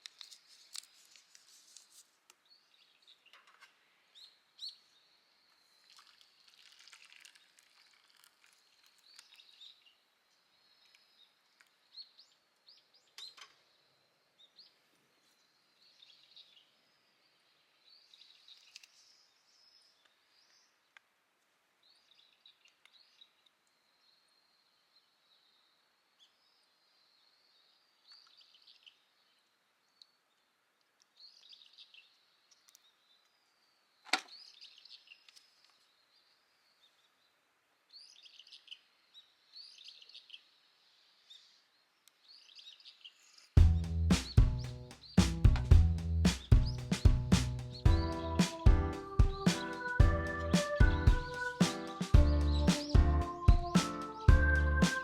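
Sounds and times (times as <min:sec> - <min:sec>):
faint birds chirping: 0:21.8 - 0:55.0.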